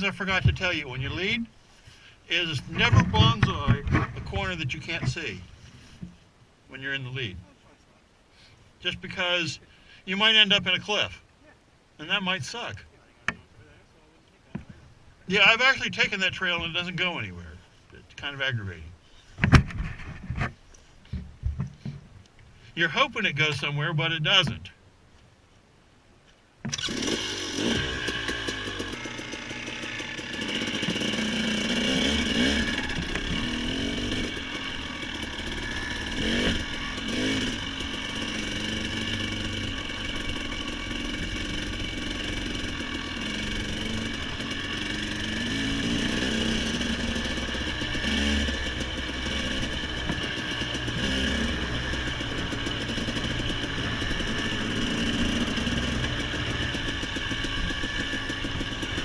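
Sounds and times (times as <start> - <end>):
off-road vehicle engine revving: 0.0 - 1.5, 2.3 - 5.5, 26.7 - 59.0.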